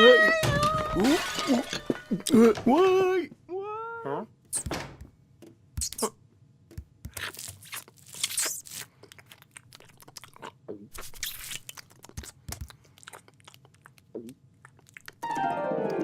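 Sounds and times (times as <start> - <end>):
cartoon crunching and chewing: 7.0 - 15.4.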